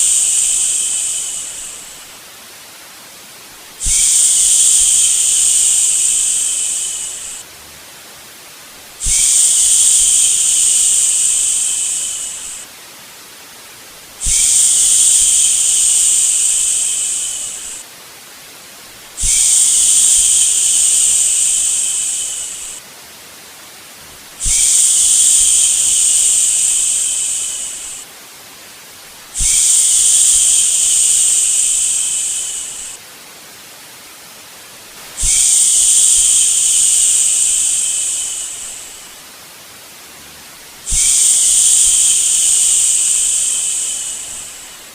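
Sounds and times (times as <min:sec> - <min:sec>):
faint steady hiss: 0:00.0 - 0:44.9
person shushing: 0:24.4 - 0:28.0, 0:29.4 - 0:33.0, 0:35.2 - 0:39.2, 0:40.9 - 0:44.9.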